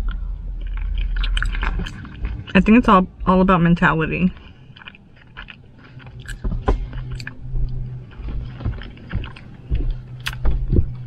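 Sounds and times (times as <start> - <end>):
mouth clicks and smacks: 0.0 - 2.6, 4.4 - 7.4, 8.2 - 11.0
person chewing: 0.0 - 2.6, 4.3 - 11.0
steady low hum: 0.0 - 11.0.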